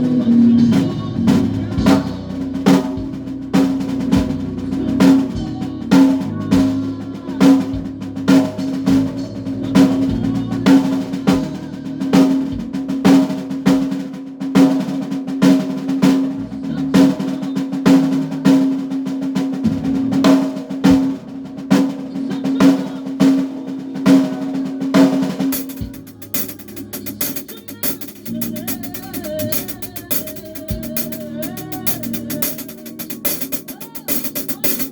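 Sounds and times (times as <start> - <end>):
drum kit playing a beat: 0.0 - 34.9
hard snare hits: 25.4 - 34.9.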